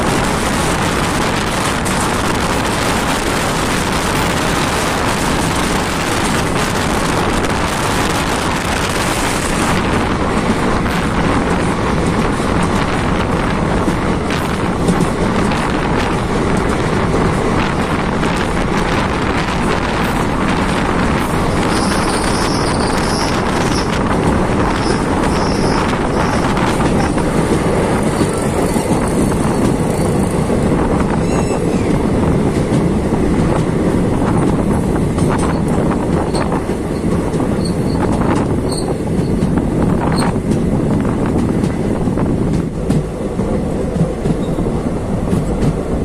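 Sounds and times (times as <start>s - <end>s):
train wheels clattering on rails: 0.0s - 46.0s
high-pitched squeals: 31.2s - 32.0s.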